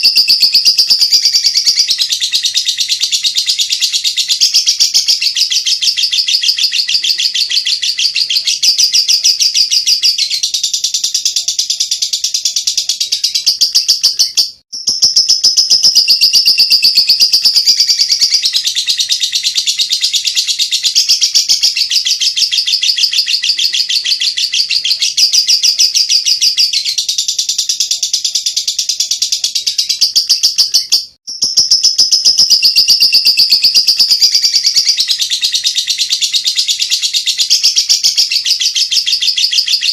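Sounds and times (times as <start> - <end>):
bird chattering trill: 0.0 - 39.9.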